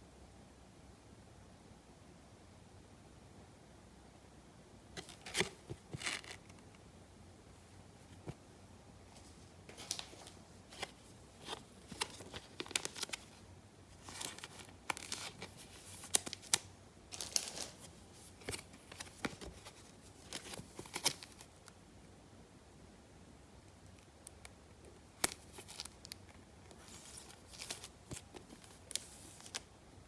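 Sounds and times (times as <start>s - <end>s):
card wrappers crinkling and tearing: 9.7s - 13.4s, 14.0s - 21.5s, 25.2s - 29.6s.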